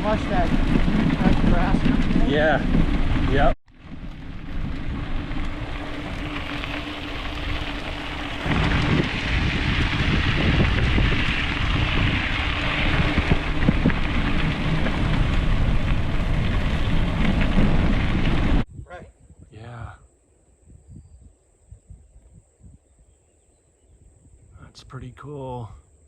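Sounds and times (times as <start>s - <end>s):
bike tyre noise: 0.0s - 18.7s
wind rumbling on microphone: 0.0s - 25.1s
steady low hum: 1.7s - 20.4s.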